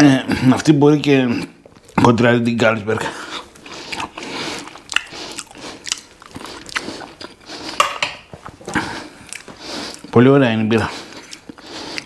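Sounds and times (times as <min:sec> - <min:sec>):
man chewing food: 0:01.6 - 0:02.1, 0:03.0 - 0:12.0
wet mouth clicks and smacks: 0:03.5 - 0:08.0, 0:09.2 - 0:10.1.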